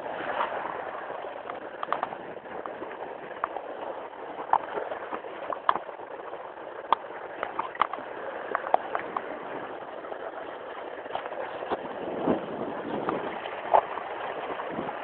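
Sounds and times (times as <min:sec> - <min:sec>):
sharp clicks and knocks: 0:01.4 - 0:02.8, 0:04.5 - 0:05.9, 0:06.9 - 0:09.3.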